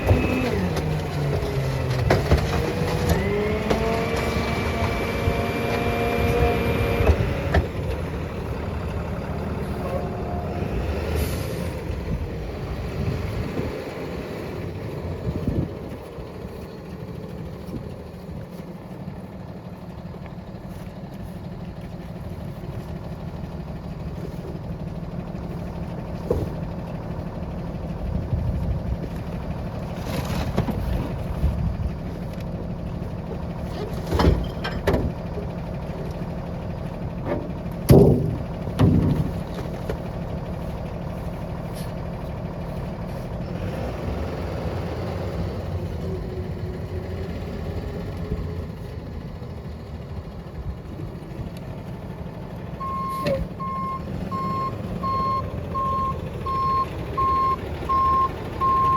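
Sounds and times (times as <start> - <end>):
recycling crashing in hopper: 0.0 - 5.2, 37.4 - 40.3
garbage truck engine running: 0.0 - 58.9.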